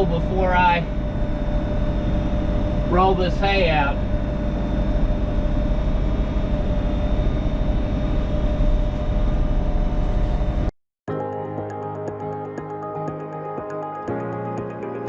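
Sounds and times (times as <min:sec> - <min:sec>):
background music: 0:11.1 - 0:15.0.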